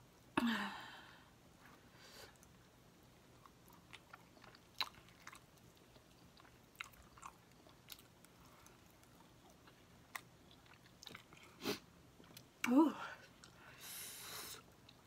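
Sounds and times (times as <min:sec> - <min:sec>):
chewing soft chicken meat: 0:02.3 - 0:12.7.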